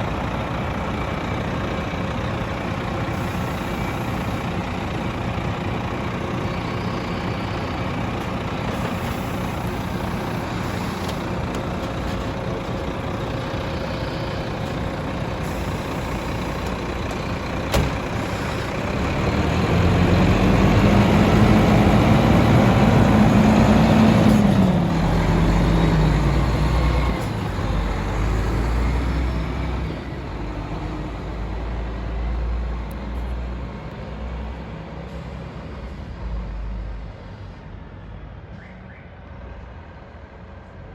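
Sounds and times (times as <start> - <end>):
garbage truck engine revving: 6.8 - 31.6.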